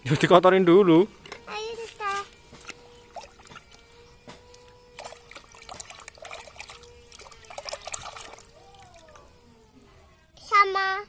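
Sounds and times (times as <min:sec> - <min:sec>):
water splashing and trickling: 0:01.7 - 0:09.8.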